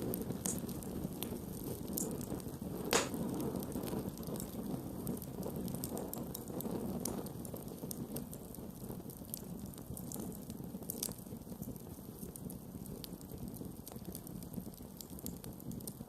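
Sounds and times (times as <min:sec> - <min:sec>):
burning wood crackling and popping: 0:00.0 - 0:16.0
rush of campfire flames: 0:00.0 - 0:16.0.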